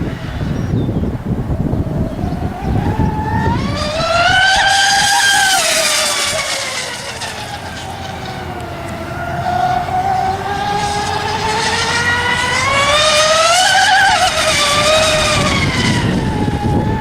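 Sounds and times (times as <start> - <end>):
model boat motor passing: 0.0 - 17.0.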